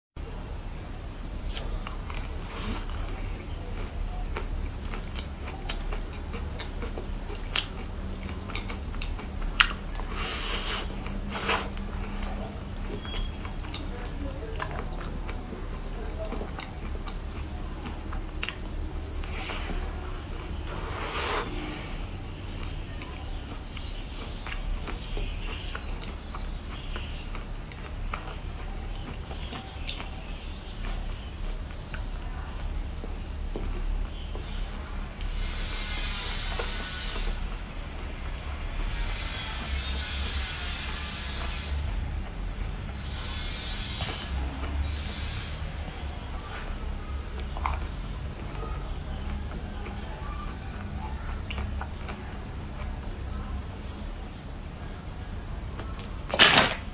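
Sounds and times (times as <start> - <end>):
steady low hum: 0.2 - 56.9
person chewing and biting food: 1.4 - 13.9, 16.2 - 21.8.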